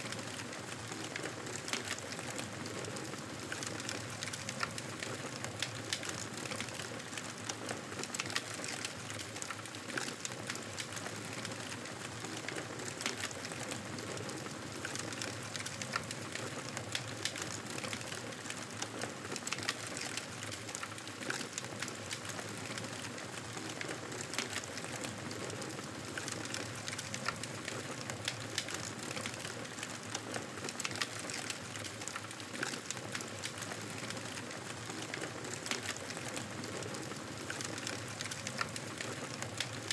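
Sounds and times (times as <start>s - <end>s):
campfire crackling and popping: 8.1s - 39.9s.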